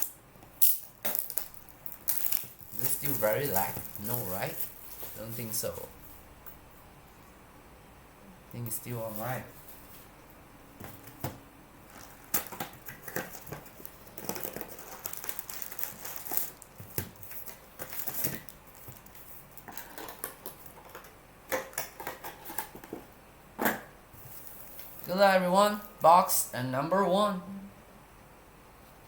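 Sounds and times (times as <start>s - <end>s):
packaging crinkling and rustling: 0.9s - 6.0s, 11.9s - 21.1s.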